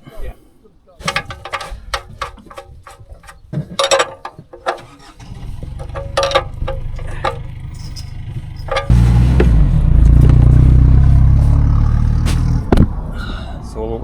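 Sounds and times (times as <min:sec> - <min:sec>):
metal tools clinking: 0:01.0 - 0:09.6
pulsing engine rumble: 0:01.0 - 0:14.0.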